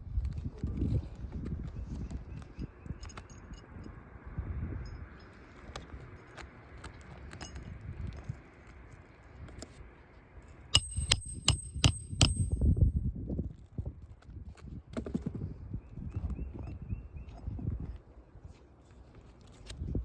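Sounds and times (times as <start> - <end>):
hammer blows with metallic ring: 10.8 - 12.8.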